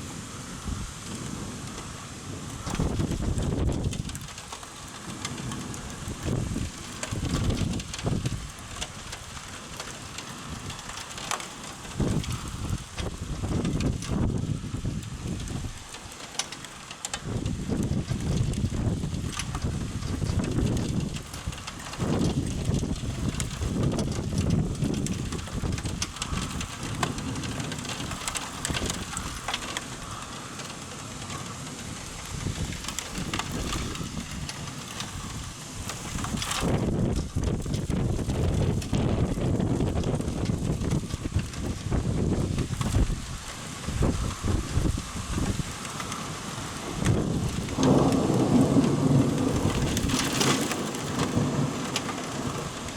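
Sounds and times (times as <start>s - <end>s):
thunder rumbling: 0.0s - 16.0s, 17.2s - 52.9s
rain hiss: 0.0s - 52.9s
sharp thunder crack: 47.0s - 52.6s.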